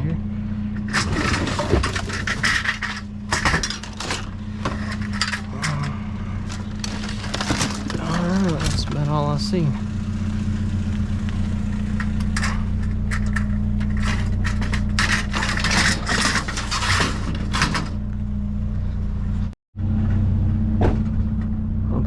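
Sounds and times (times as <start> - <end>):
truck engine idling: 0.0 - 22.0
trash rustling and scraping: 0.6 - 18.2.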